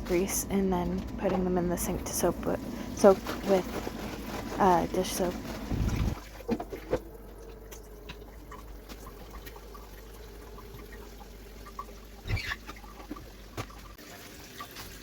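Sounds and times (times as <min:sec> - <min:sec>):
water running into sink: 0:04.9 - 0:15.0.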